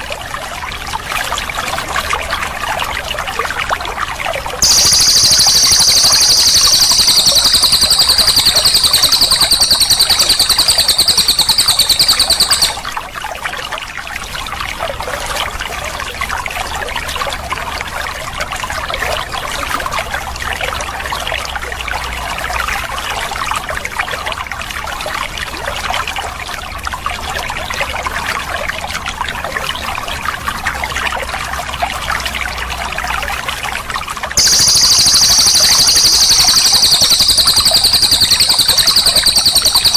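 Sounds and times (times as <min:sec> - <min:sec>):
trickling water: 0:00.0 - 0:39.9
insect high-pitched trill: 0:04.6 - 0:12.9, 0:34.4 - 0:39.9.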